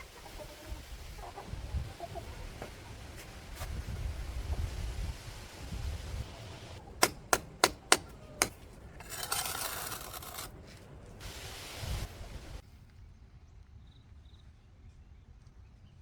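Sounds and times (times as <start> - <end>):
sharp knocks: 7.0 - 8.6
rasping scrape: 7.0 - 10.9.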